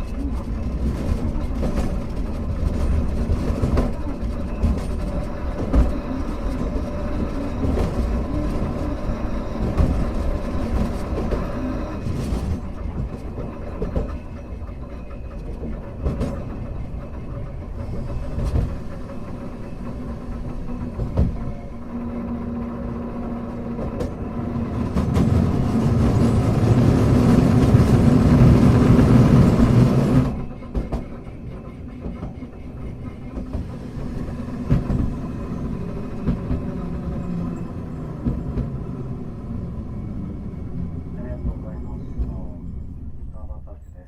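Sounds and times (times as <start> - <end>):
wheels rumbling on rail: 0.0 - 44.0.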